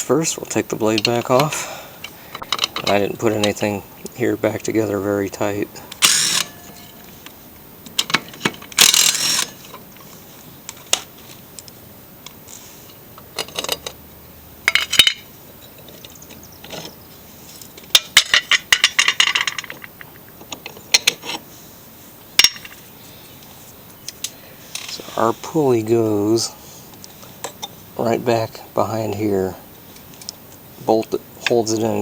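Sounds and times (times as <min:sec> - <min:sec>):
metal tools clicking and clinking: 0:00.9 - 0:03.7, 0:13.4 - 0:14.0, 0:14.7 - 0:16.0, 0:17.9 - 0:21.4, 0:22.4 - 0:22.8.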